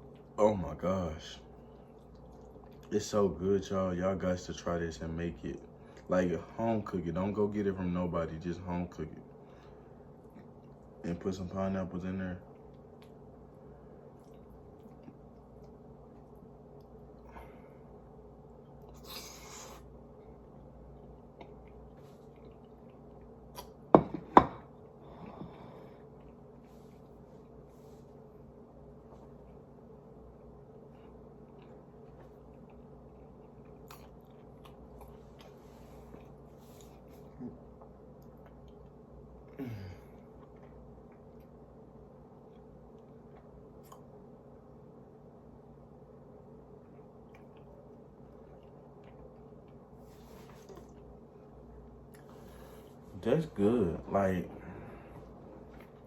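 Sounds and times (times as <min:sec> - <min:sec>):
low steady hum: 0:00.0 - 0:56.0
person chewing: 0:01.5 - 0:03.0, 0:12.5 - 0:17.6, 0:18.5 - 0:23.8, 0:24.7 - 0:28.2, 0:29.0 - 0:41.6, 0:42.4 - 0:44.2, 0:46.8 - 0:53.0.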